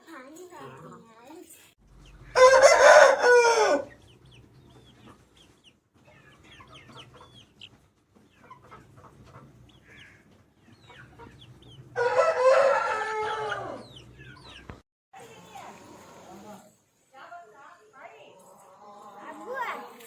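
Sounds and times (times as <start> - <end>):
chickens chirping: 1.9 - 16.8, 18.0 - 20.0
rooster crowing: 2.3 - 3.9, 12.0 - 13.9.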